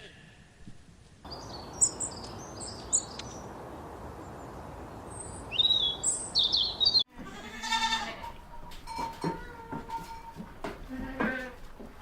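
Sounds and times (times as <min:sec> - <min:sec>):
small bird chirping: 0:01.3 - 0:03.6, 0:04.2 - 0:07.1
goat bleating: 0:07.1 - 0:11.8.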